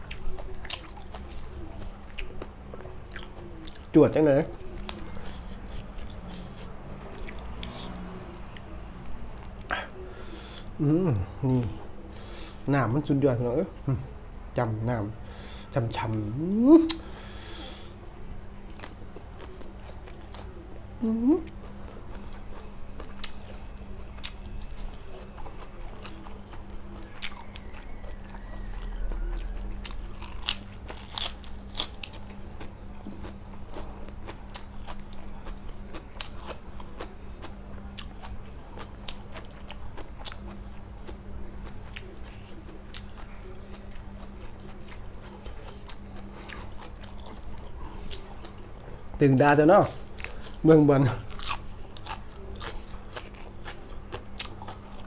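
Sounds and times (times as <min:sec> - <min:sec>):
person chewing crunchy food: 0:00.0 - 0:08.7, 0:18.3 - 0:20.7, 0:21.5 - 0:55.0
low hum: 0:13.6 - 0:50.6.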